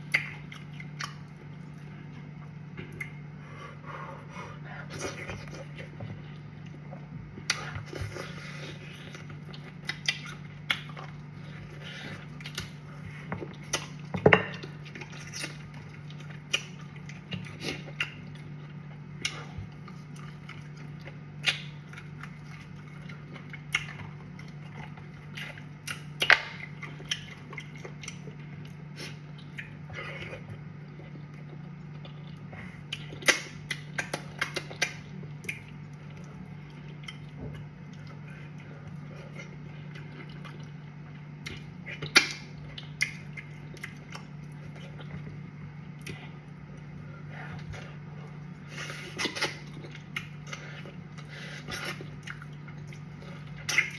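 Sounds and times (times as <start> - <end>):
person chewing food: 0.0 - 53.9
steady low hum: 0.0 - 53.9.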